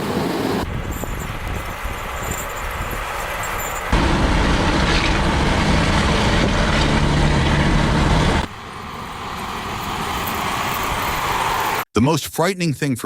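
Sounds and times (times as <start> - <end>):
heavy vehicle engine droning: 3.1 - 11.8.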